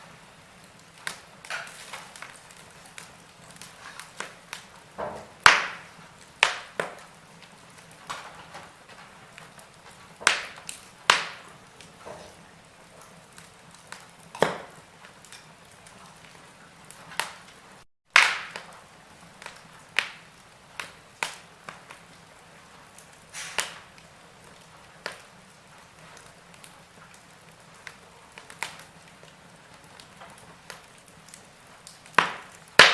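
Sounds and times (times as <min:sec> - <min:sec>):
faint steady hiss: 0:00.0 - 0:32.9
wood fire crackling and popping: 0:00.0 - 0:32.9.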